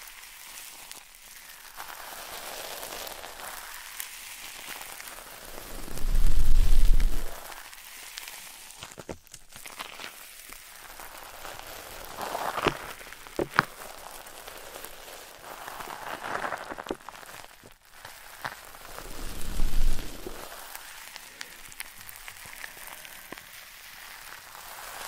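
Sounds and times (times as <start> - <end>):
soft crackling and scratching: 0.0 - 25.0
loud rustles: 18.9 - 20.5.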